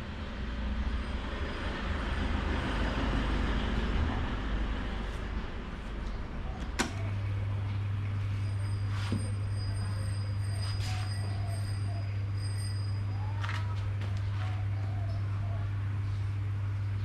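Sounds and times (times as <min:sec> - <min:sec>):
electric fan motor humming: 0:00.0 - 0:17.0
fan switch click: 0:06.6 - 0:07.1.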